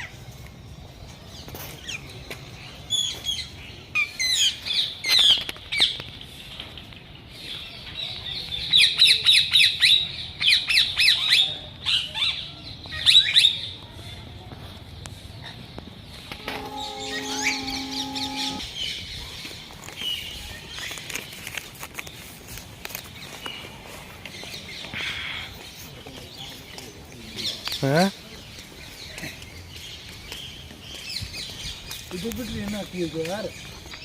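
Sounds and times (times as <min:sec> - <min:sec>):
parrots squawking: 0:16.3 - 0:18.6.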